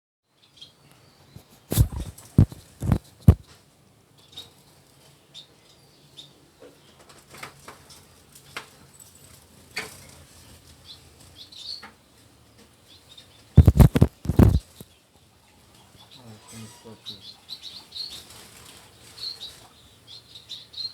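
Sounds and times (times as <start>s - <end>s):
birds wings fluttering: 1.4s - 3.4s, 13.6s - 14.8s.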